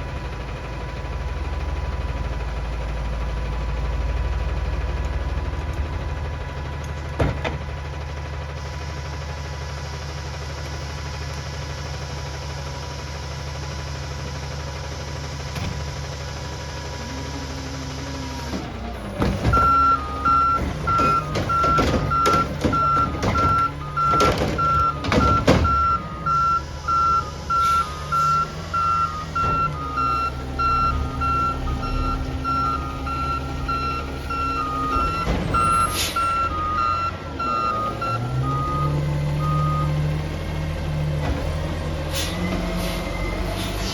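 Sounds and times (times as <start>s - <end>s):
truck diesel engine idling: 0.0s - 43.6s
loud knocks and clatter: 7.2s - 7.7s, 18.5s - 26.0s
reversing alarm beeps: 19.4s - 40.0s.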